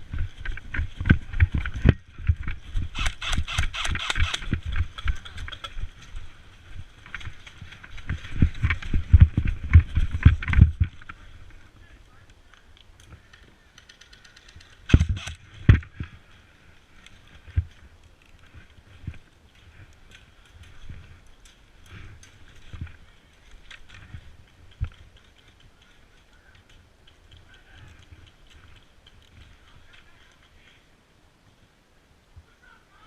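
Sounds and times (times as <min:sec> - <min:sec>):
running footsteps heavy thuds: 0:05.8 - 0:11.3.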